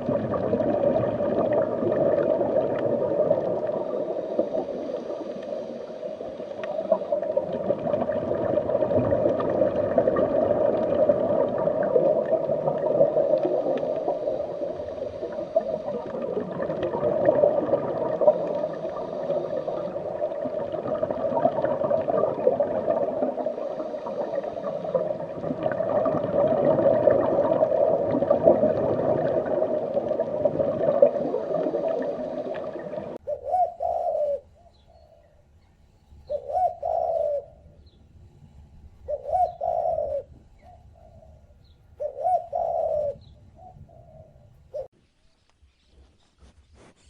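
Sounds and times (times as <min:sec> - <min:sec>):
dense steady noise: 0:00.0 - 0:33.2
pigeon cooing: 0:33.2 - 0:34.8, 0:36.3 - 0:37.6, 0:39.1 - 0:41.4, 0:42.0 - 0:44.9.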